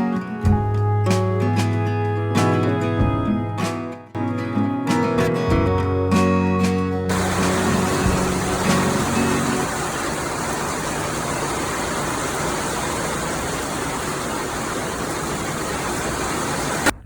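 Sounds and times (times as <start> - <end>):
heavy rain pouring: 7.1 - 17.0.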